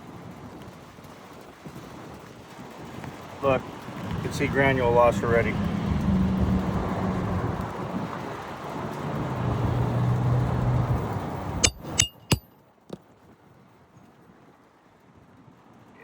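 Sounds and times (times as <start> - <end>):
road traffic rumble: 3.2 - 12.0
sharp metallic clinks: 11.6 - 12.5.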